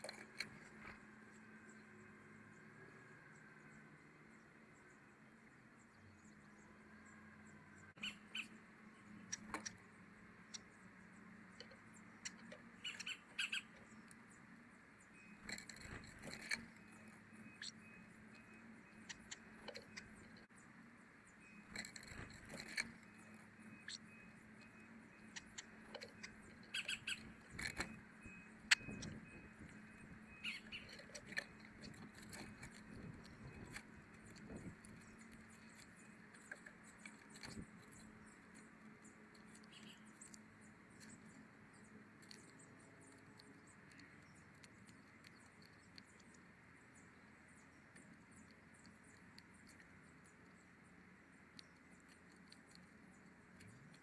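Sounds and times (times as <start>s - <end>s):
faint steady hum: 0.0s - 54.0s
small birds chirping: 0.0s - 54.0s
sharp clicks: 24.6s - 38.6s.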